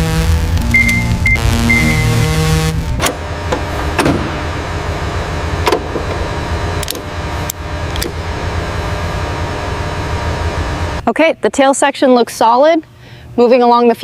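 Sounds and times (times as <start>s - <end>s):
steady low hum: 0.0s - 13.9s
sharp clicks and knocks: 2.9s - 4.6s, 5.6s - 8.2s.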